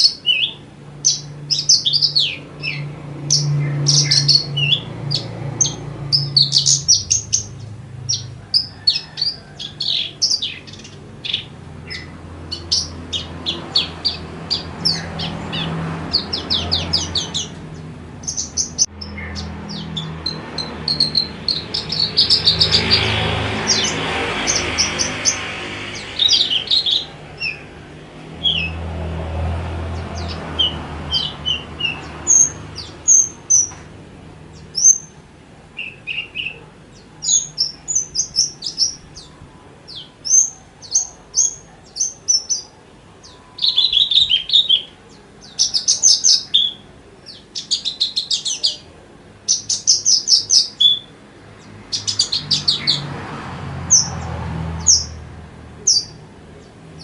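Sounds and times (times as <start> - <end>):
lark singing: 0.0 - 27.8, 35.8 - 51.2.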